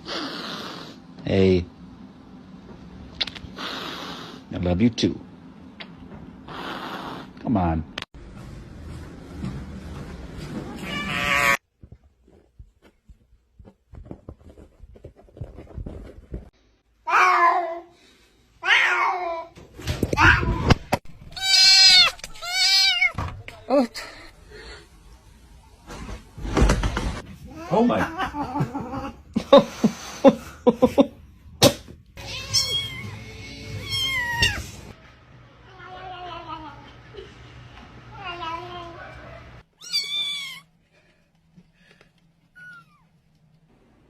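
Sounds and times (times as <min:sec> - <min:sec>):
cat meowing: 0:10.8 - 0:11.6, 0:21.3 - 0:23.2, 0:32.2 - 0:34.7, 0:39.8 - 0:40.7.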